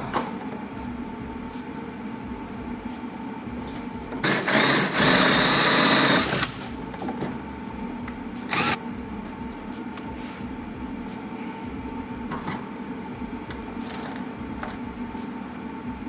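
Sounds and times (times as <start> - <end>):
power drill whining: 4.2 - 6.6, 8.5 - 8.8.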